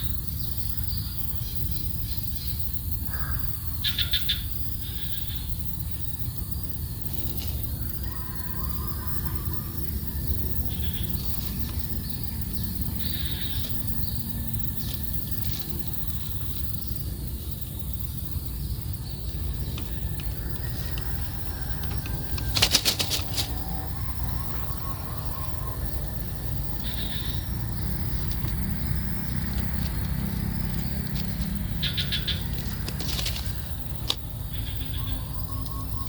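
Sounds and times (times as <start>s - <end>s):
bird wings flapping: 21.6s - 23.9s, 32.6s - 34.2s
faint high chirps: 34.6s - 36.0s.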